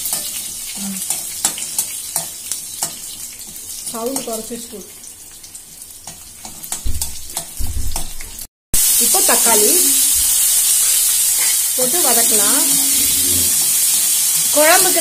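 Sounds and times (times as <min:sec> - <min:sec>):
vegetables sizzling in hot oil: 0:00.0 - 0:15.0
low knocks: 0:06.8 - 0:08.1
woman's voice: 0:11.8 - 0:13.0, 0:14.5 - 0:15.0.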